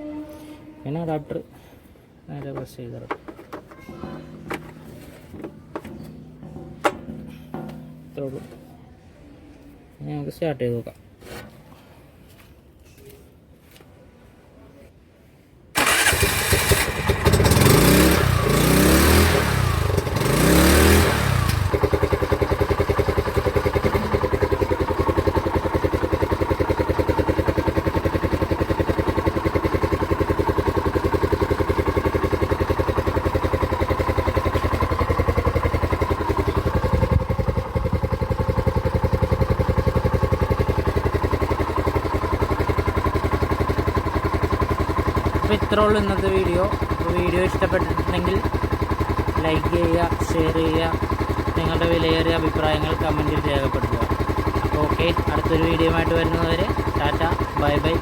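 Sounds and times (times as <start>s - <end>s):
auto-rickshaw engine revving and idling: 15.8s - 58.0s.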